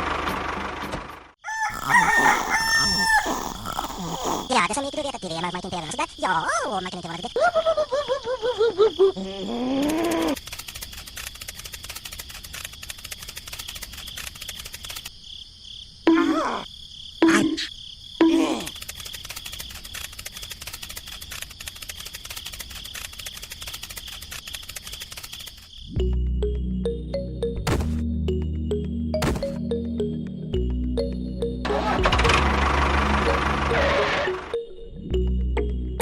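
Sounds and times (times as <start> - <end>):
insect chirring: 1.4 - 26.1
short rising and falling calls: 1.5 - 4.5.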